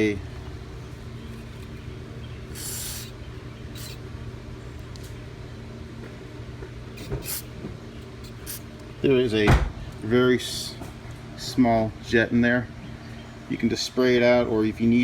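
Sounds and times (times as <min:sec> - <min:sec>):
steady low hum: 0:00.0 - 0:15.0
aerosol spray hiss: 0:02.6 - 0:03.1.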